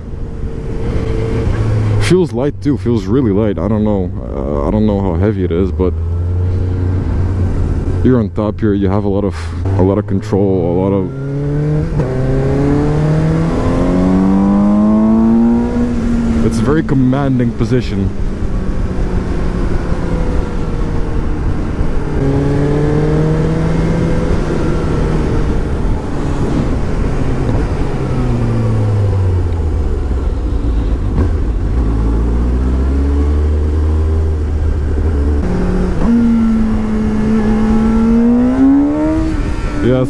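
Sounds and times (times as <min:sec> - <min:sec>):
motorcycle engine revving: 0:09.5 - 0:40.0.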